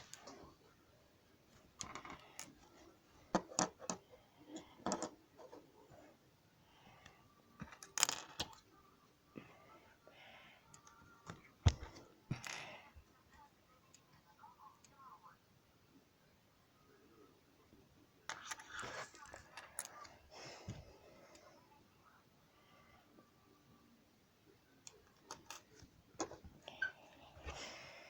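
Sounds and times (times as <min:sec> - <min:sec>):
plastic pieces clicking and rattling: 0:07.6 - 0:08.7, 0:25.0 - 0:26.4.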